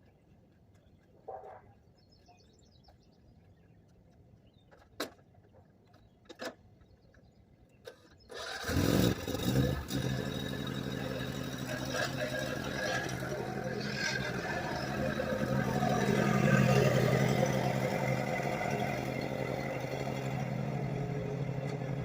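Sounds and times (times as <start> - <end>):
lawn mower engine running: 8.3 - 22.0.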